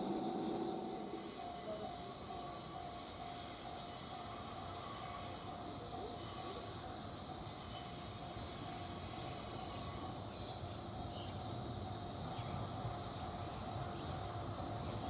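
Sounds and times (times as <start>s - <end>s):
constant hum: 0.0s - 2.0s
train rumbling: 0.0s - 15.0s.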